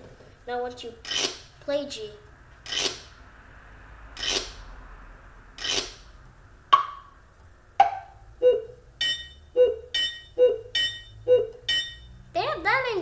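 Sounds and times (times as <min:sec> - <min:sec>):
keyboard sharp knocks: 0:06.7 - 0:07.1, 0:07.8 - 0:08.2.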